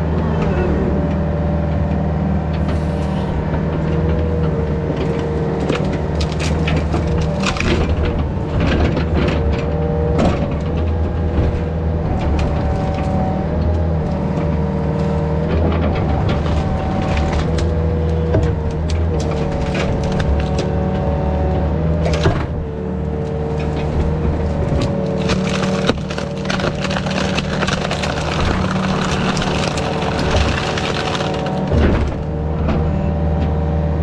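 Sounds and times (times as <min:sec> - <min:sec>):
diesel engine running: 0:00.0 - 0:34.0
wood cracking and snapping: 0:05.0 - 0:09.2, 0:16.0 - 0:21.1, 0:22.0 - 0:22.6, 0:23.2 - 0:32.5.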